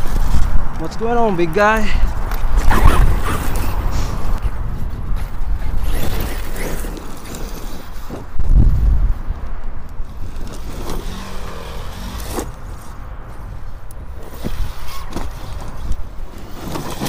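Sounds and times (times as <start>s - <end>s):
toy truck electric motor: 5.7s - 8.1s, 10.2s - 12.5s, 14.2s - 17.0s.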